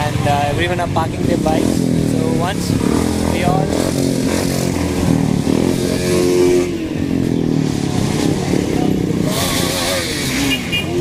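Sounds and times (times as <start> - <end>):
motorcycle engines idling and revving: 0.0 - 11.0.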